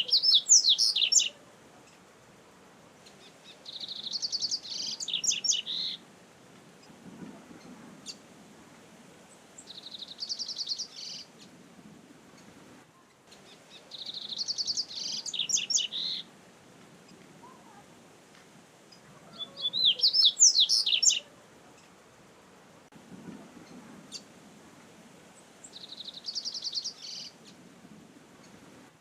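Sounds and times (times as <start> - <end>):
bird trilling and whistling: 0.0 - 1.3, 19.4 - 21.2
faint low background noise: 0.0 - 29.0.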